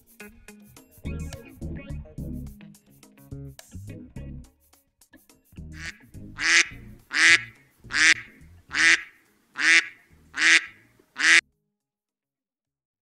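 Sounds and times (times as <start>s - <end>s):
duck quacking: 5.8s - 11.4s.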